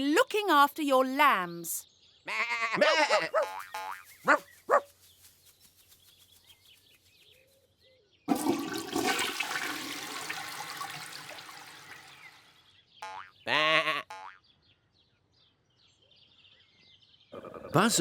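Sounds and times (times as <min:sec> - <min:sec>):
bleating animal calls: 0:02.2 - 0:04.4, 0:13.4 - 0:14.2.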